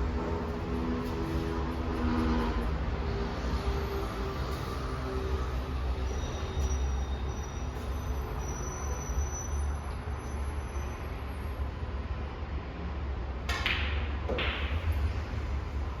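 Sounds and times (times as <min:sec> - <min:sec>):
room hum: 0:00.0 - 0:07.9
snooker balls clacking: 0:13.5 - 0:15.1.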